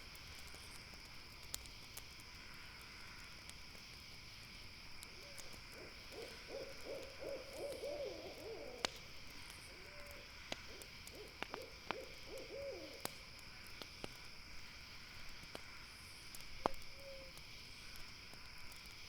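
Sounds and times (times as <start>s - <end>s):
campfire crackling: 0.0s - 19.0s
night insects droning: 0.0s - 19.0s
owl hooting: 5.8s - 8.9s, 9.7s - 13.1s.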